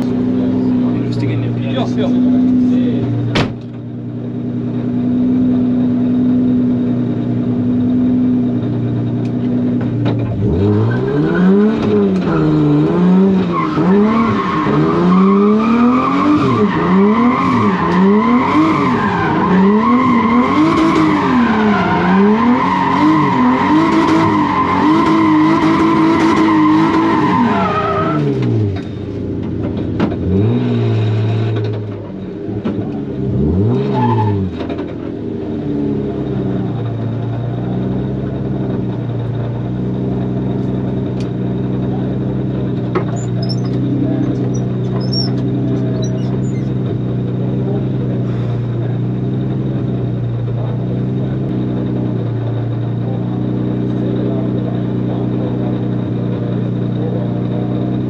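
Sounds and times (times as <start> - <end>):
car engine revving: 0.0 - 58.0
tyres squealing: 43.0 - 46.9.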